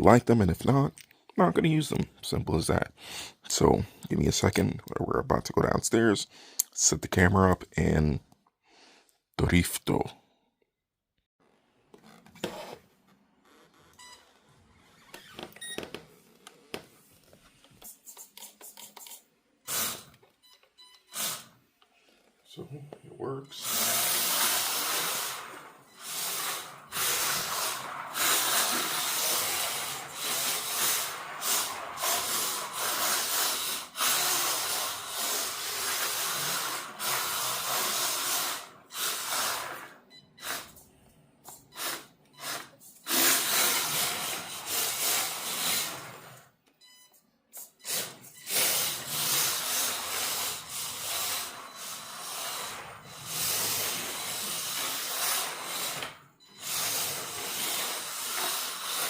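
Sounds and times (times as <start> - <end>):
tyres hissing on floor: 17.7 - 20.1, 23.8 - 46.4, 47.6 - 59.0
small electric motor running: 23.6 - 38.7, 56.6 - 59.0.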